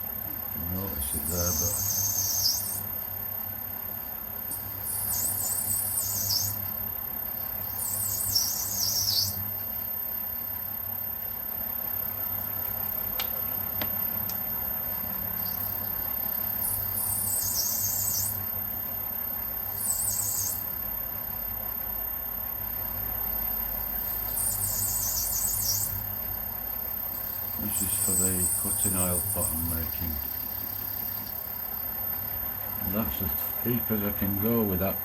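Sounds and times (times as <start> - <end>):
high wavering tool squeal: 1.4 - 2.8, 4.7 - 6.6, 19.8 - 20.7, 24.3 - 26.0.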